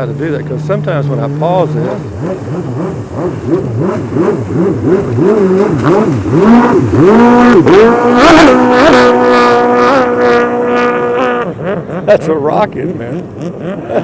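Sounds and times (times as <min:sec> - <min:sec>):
jet ski engine revving: 0:00.0 - 0:14.0.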